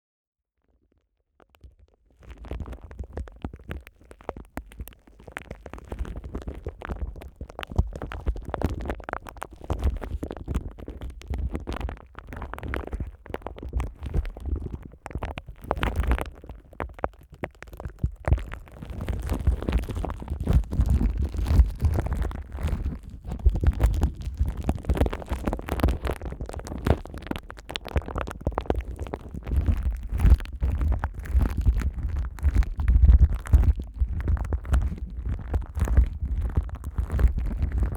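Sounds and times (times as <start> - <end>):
plastic film crinkling on microphone: 1.5 - 37.9.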